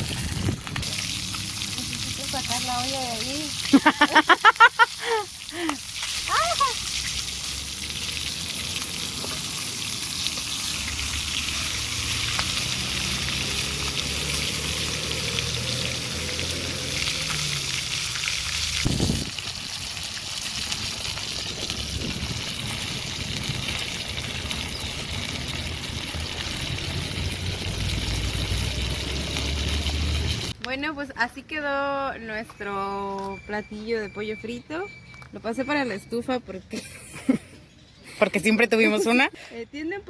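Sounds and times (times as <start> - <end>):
chicken sizzling in hot oil: 0.0 - 30.6.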